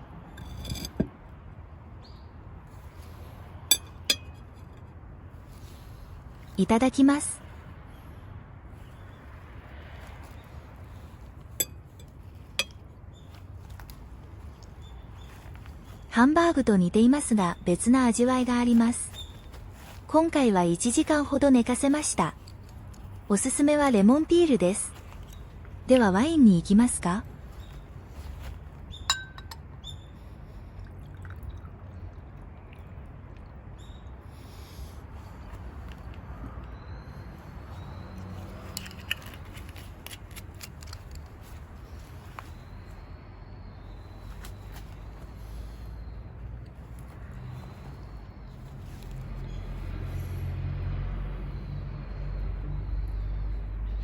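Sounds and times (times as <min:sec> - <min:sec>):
low outdoor rumble: 0:00.0 - 0:54.0
wine glass clink: 0:03.7 - 0:04.4, 0:29.1 - 0:29.6
light taps of glass: 0:29.1 - 0:29.6.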